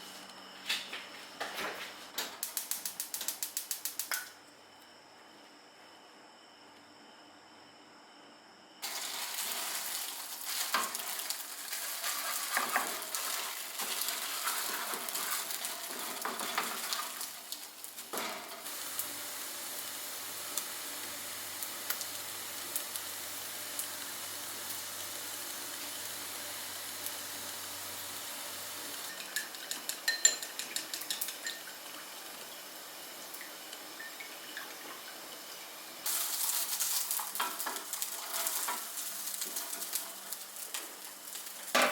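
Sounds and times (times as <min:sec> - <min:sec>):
food sizzling in a frying pan: 0:08.8 - 0:41.9
utensils tapping a pan: 0:29.1 - 0:31.7, 0:36.3 - 0:40.9.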